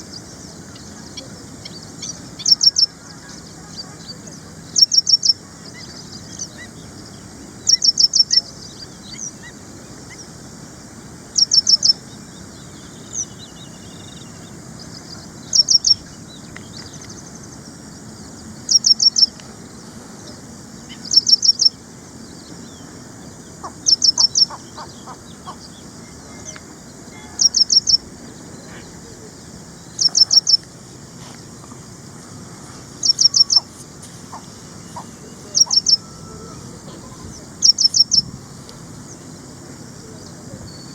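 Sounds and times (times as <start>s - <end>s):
faint bird chirps: 0.0s - 10.3s, 11.4s - 19.4s, 20.2s - 30.7s, 33.0s - 38.3s
bird calling high notes: 34.3s - 38.2s.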